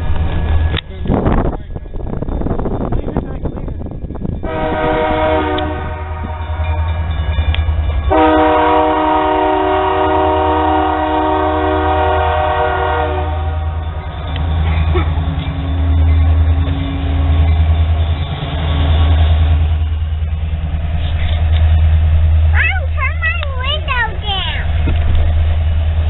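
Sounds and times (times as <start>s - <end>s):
train air horn blasts: 4.4s - 7.0s, 8.1s - 13.9s
steady low rumble: 13.3s - 26.0s.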